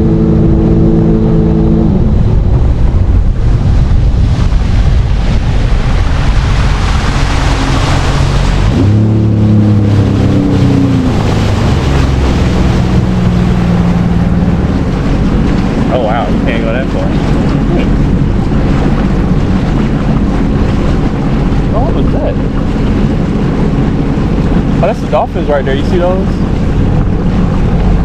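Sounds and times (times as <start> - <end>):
jet ski engine running: 0.0 - 28.0
rushing water: 0.0 - 28.0
wind buffeting microphone: 0.0 - 28.0.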